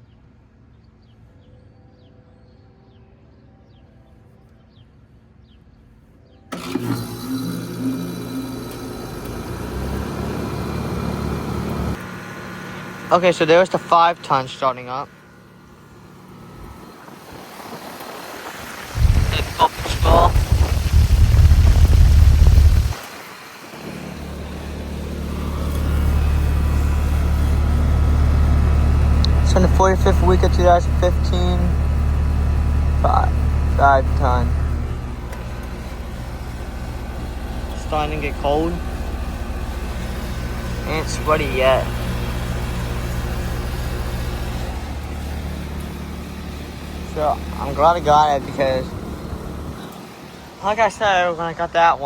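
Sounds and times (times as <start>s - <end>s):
heat pump compressor and fan humming: 6.5s - 52.0s
loud low rumble: 19.0s - 23.0s, 23.9s - 49.8s.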